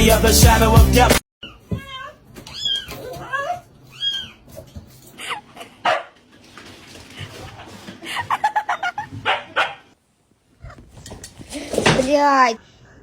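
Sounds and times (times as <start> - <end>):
dog barking and yipping: 5.2 - 6.2, 8.6 - 10.0.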